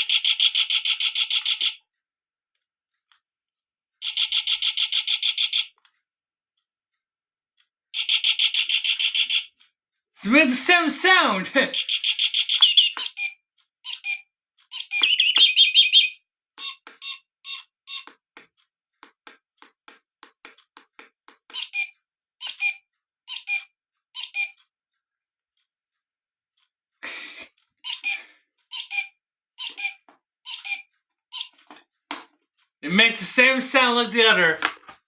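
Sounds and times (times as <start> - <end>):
recorded bird trill: 11.7 - 13.3, 13.9 - 16.8
recorded bird chirps: 11.7 - 17.2.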